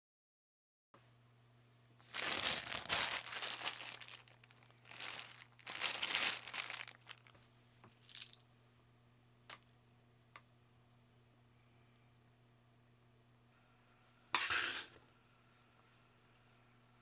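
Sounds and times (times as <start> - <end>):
packaging crinkling: 2.0 - 7.4, 8.0 - 8.4.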